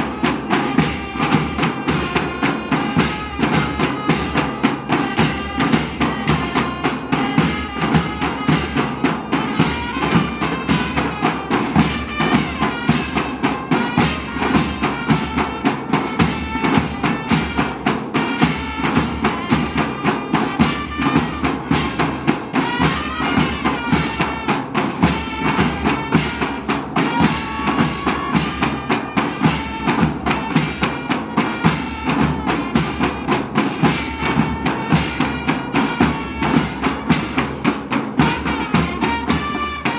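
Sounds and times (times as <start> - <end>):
quick percussion beat: 0.0 - 39.9
reedy wind instrument melody: 0.0 - 39.9.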